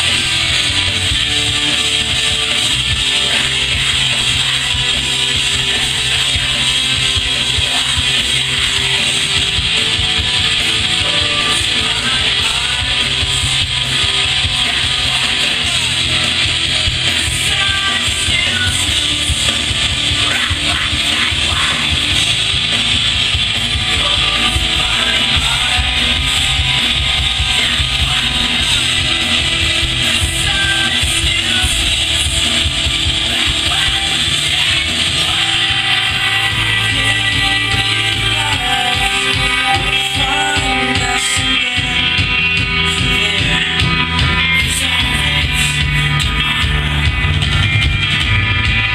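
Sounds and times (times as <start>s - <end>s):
rock music with guitar: 0.0s - 48.9s.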